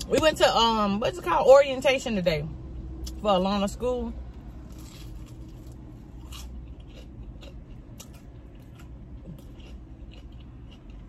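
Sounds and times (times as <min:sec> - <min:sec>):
low steady hum: 0:00.0 - 0:11.0
crunchy food chewing: 0:04.3 - 0:11.0.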